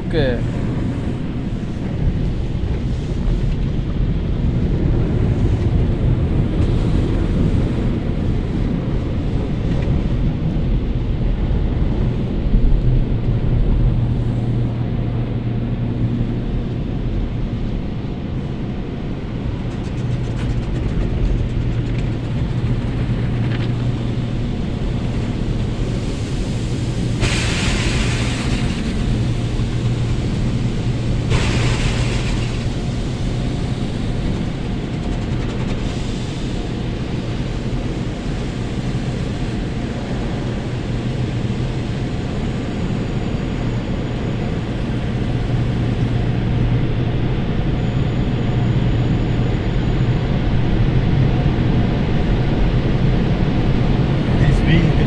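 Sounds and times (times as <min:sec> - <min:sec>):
car wash machinery rumbling: 0:00.0 - 0:55.0
water spraying on car body: 0:19.7 - 0:35.0.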